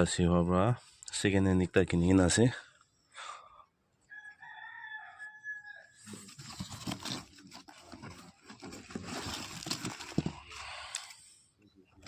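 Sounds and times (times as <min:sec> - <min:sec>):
rooster crowing: 0:04.0 - 0:06.2
clattering and rustling knocks: 0:06.3 - 0:10.6.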